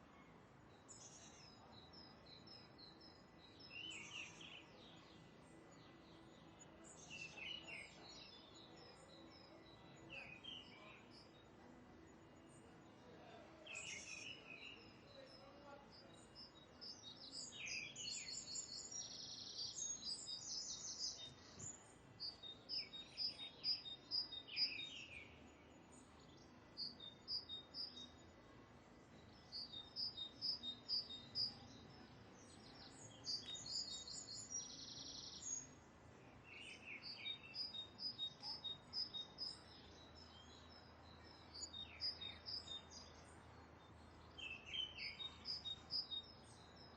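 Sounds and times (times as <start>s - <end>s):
faint outdoor background noise: 0.0s - 46.9s.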